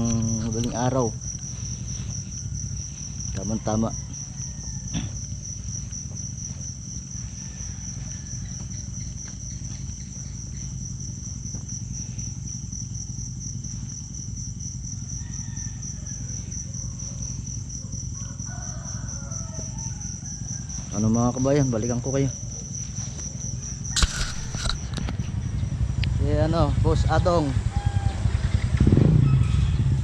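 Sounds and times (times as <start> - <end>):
crickets trilling: 0.0 - 30.0
low steady rumble: 22.3 - 30.0.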